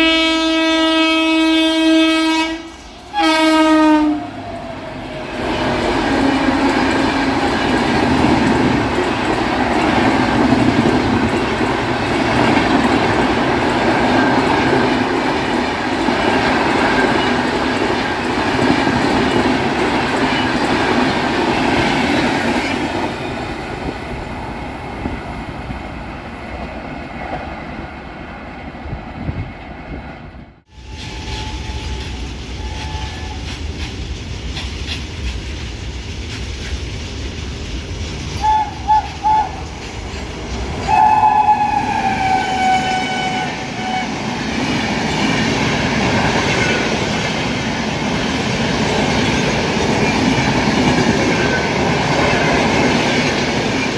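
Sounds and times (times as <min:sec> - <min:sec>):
train passing at speed: 0:00.0 - 0:53.9
wheels clacking over rail joints: 0:04.4 - 0:23.9.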